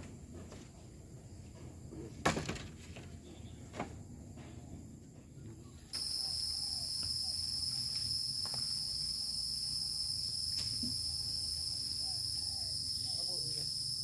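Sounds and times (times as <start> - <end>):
insects shrilling: 6.0 - 14.0.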